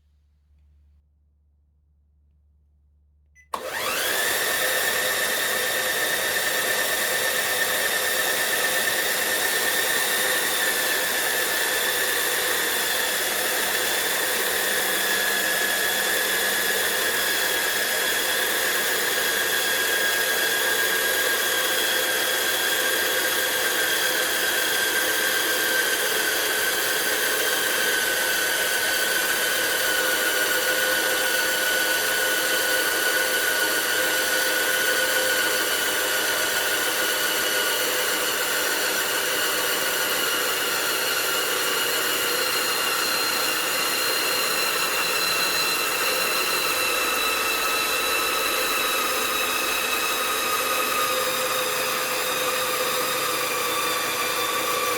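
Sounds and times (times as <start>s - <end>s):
small electric motor whining: 3.6s - 54.9s.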